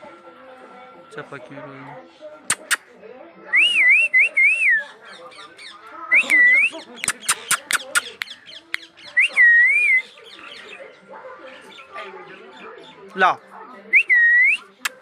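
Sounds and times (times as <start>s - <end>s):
sharp clicks: 2.5s - 2.8s.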